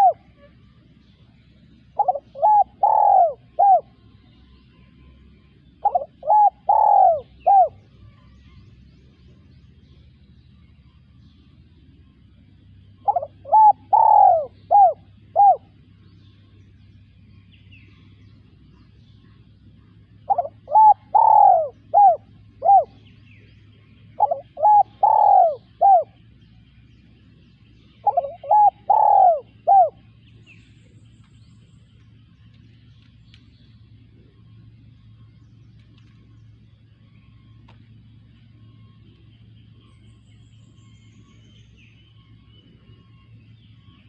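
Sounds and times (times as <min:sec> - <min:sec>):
dove cooing: 0:00.0 - 0:04.2, 0:05.8 - 0:07.8, 0:12.9 - 0:16.0, 0:19.8 - 0:26.3, 0:27.9 - 0:30.3.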